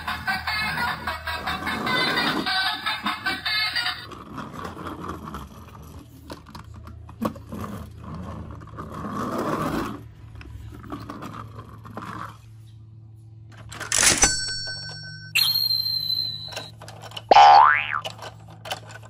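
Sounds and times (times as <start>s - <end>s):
toy wheels rolling on wooden table: 1.4s - 12.5s.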